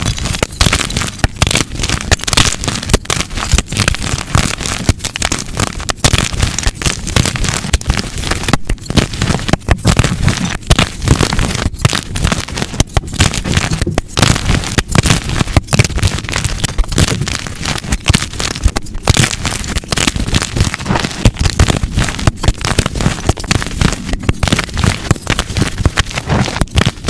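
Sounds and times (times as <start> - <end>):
chalk crushed and crumbled: 0.0 - 27.0.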